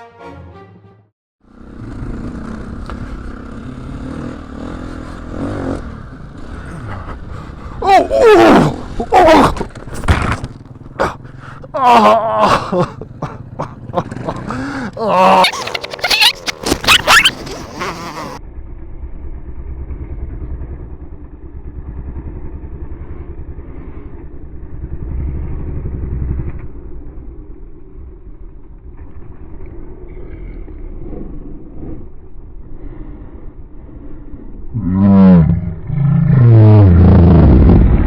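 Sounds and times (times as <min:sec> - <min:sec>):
dirt bike engine revving: 0:01.4 - 0:18.4.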